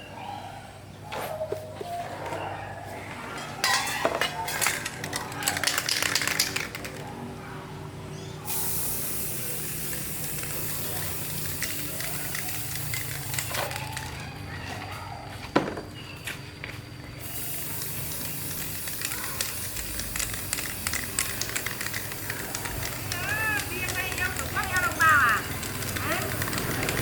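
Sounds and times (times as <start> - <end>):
metal parts clattering and clinking: 3.6 - 7.1, 10.2 - 14.2
high spraying hiss: 8.5 - 14.1, 17.2 - 27.0.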